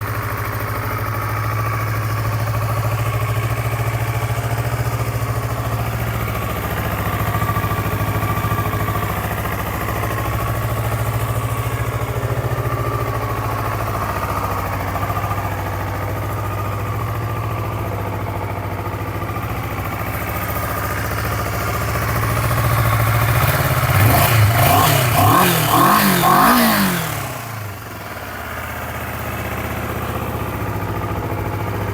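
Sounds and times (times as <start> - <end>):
motorcycle engine idling: 0.0 - 31.9
engine revving: 23.2 - 27.9.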